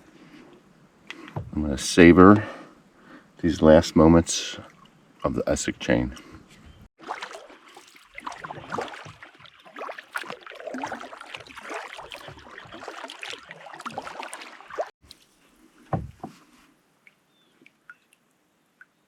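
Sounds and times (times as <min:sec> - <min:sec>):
low thump: 0:01.4 - 0:01.6, 0:15.9 - 0:16.4
paddle splashing water: 0:04.4 - 0:05.4, 0:07.0 - 0:18.0.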